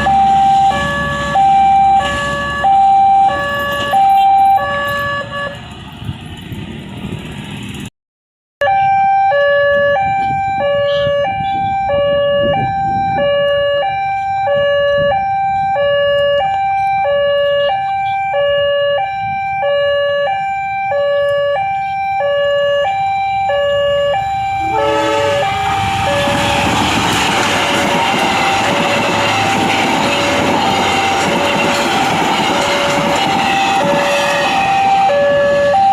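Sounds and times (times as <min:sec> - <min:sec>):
level crossing two-tone alarm: 0:00.0 - 0:05.6, 0:08.6 - 0:35.9
train rushing past: 0:00.0 - 0:07.9, 0:22.9 - 0:35.9.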